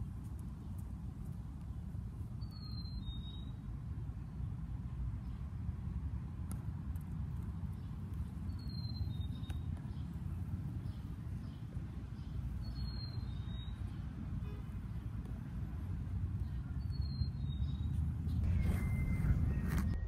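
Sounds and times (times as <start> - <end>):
low rumble: 18.3 - 20.0.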